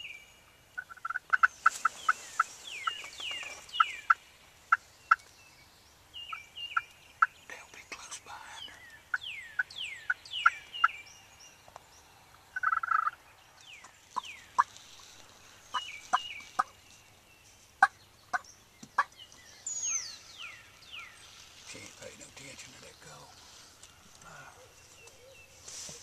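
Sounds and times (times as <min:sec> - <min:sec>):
turkey call yelps and clucks: 0:00.8 - 0:01.5, 0:12.6 - 0:13.2.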